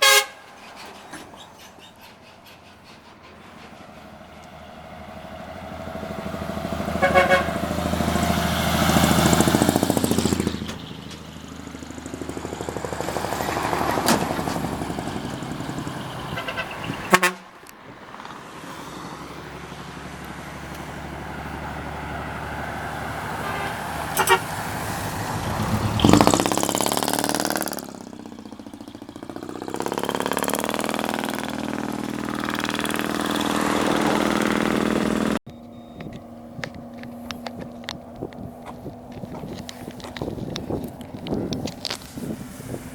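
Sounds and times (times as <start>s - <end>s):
horn toots: 0.0s - 0.8s, 6.8s - 8.3s, 16.1s - 17.7s, 23.3s - 24.9s
truck engines revving loudly: 0.0s - 42.9s.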